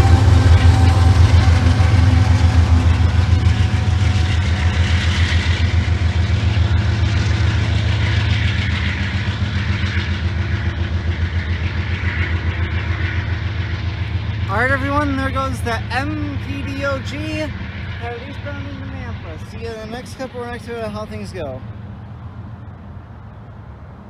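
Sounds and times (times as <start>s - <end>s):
freight train rumbling past: 0.0s - 24.0s.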